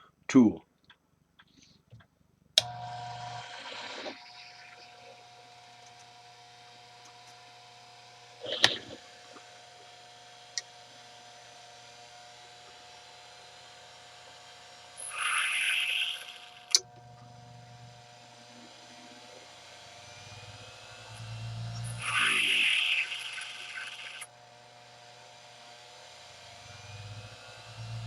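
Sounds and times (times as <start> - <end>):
electric grinder motor humming: 2.6 - 8.4, 14.1 - 28.0
tool bit grinding: 15.0 - 16.8, 21.2 - 24.3.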